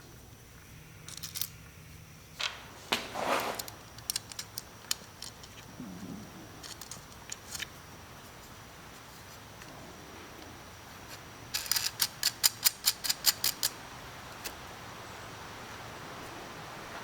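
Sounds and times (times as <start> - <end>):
metal parts clicking and clinking: 1.0 - 1.6, 3.2 - 5.7, 6.6 - 7.7, 11.5 - 13.8
short scraping rub: 2.8 - 3.7.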